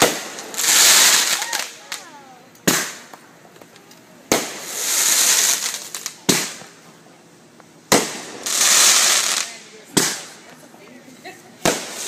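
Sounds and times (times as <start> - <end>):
fireworks bangs: 0.0 - 3.2, 4.2 - 6.8, 7.9 - 10.5, 11.6 - 12.0
fireworks crackling: 0.0 - 12.0.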